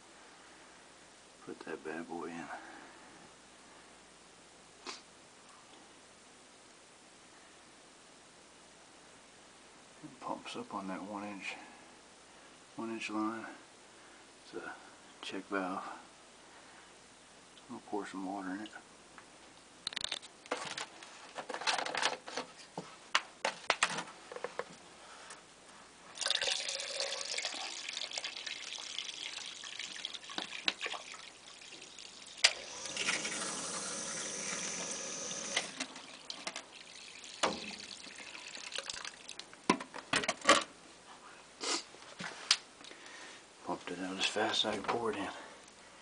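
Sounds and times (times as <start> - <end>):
water splashing into a pit: 35.8 - 39.4.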